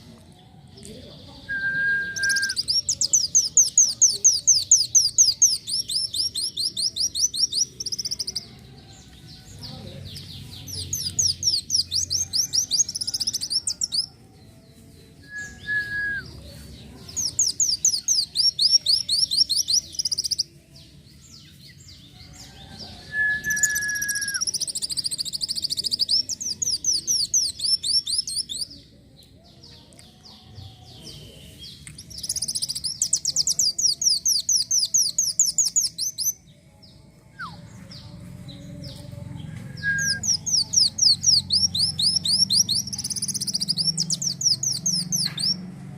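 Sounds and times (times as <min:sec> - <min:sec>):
bird singing high trills: 0:23.1 - 0:28.7.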